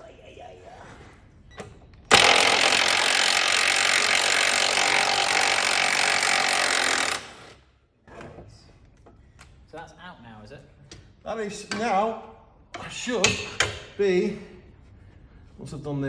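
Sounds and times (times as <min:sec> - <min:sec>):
impact wrench hammering: 0:02.1 - 0:07.6, 0:13.2 - 0:13.9.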